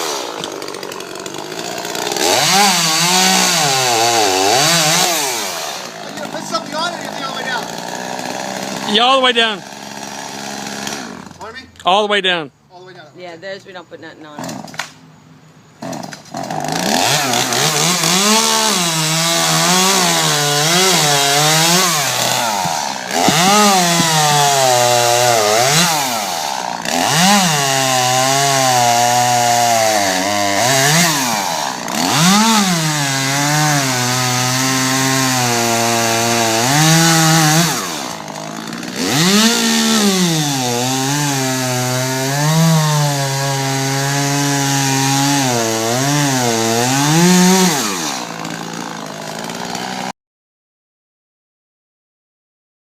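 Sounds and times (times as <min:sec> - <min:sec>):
stump grinder engine under load: 0:00.0 - 0:11.5, 0:15.8 - 0:50.1.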